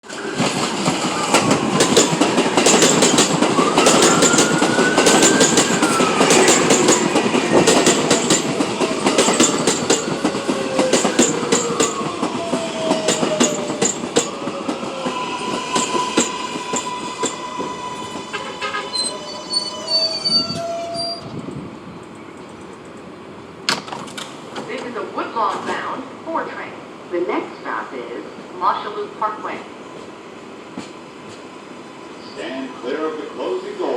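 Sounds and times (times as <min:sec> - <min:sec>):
train propulsion whine: 0:00.0 - 0:23.6
wheels clicking over rail joints: 0:01.4 - 0:12.4
wheels squealing: 0:12.8 - 0:21.4.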